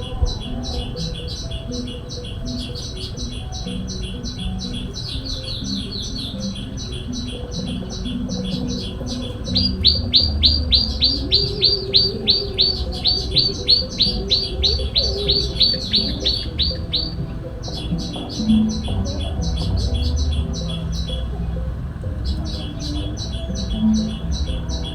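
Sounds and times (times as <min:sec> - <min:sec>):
bird chattering: 0:00.0 - 0:24.9
songbird chirping: 0:00.0 - 0:24.9.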